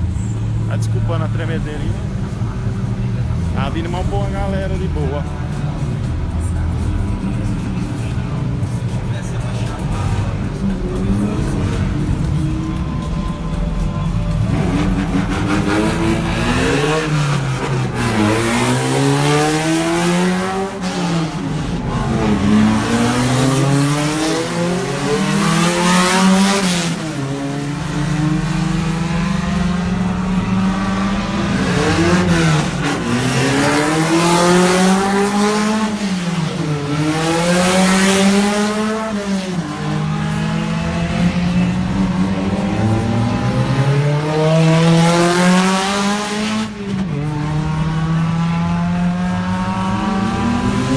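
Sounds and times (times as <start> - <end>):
race car engines revving past: 0.0 - 50.9.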